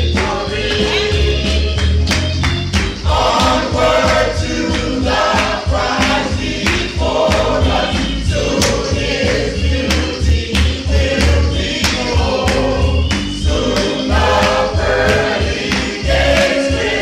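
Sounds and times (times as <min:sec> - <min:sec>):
band with bass and drums: 0:00.0 - 0:10.1
choir singing gospel: 0:00.0 - 0:17.0.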